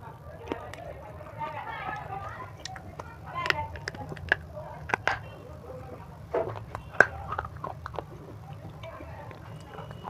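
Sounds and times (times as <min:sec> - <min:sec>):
crunchy chewing: 0:00.0 - 0:10.0.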